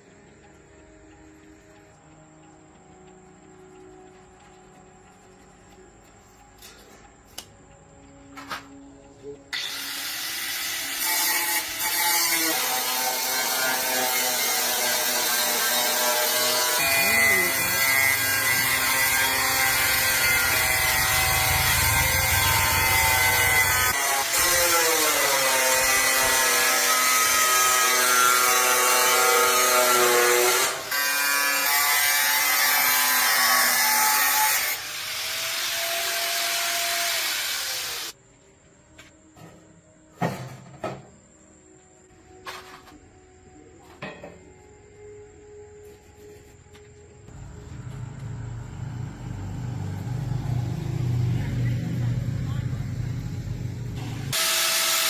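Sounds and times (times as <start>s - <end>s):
power tool running: 9.5s - 38.2s, 53.8s - 55.0s
hiss of abrasion: 34.3s - 38.2s.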